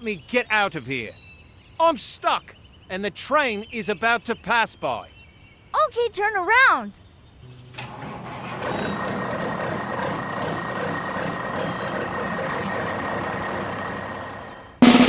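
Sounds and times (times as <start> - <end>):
vehicle engine whining: 7.3 - 15.0.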